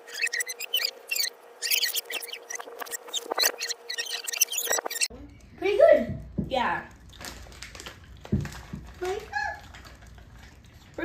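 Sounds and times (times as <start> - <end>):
high-pitched squeaky chatter: 0.0 - 5.1.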